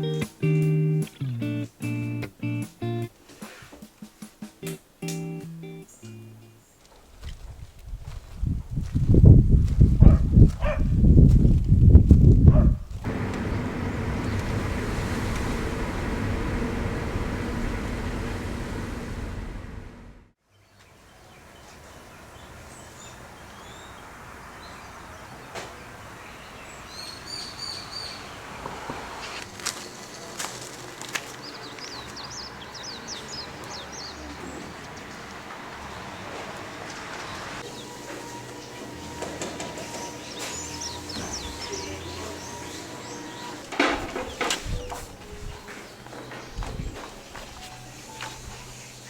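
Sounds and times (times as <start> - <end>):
outdoor ambience hiss: 0.0 - 9.8, 12.9 - 49.0
birds chirping: 12.5 - 28.5, 31.2 - 49.0.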